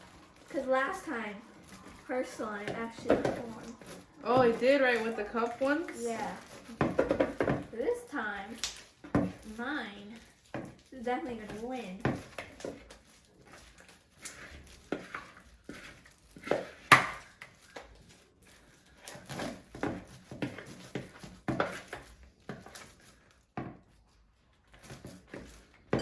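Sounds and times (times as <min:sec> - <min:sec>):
slime squishing in a bowl: 0:00.0 - 0:26.0.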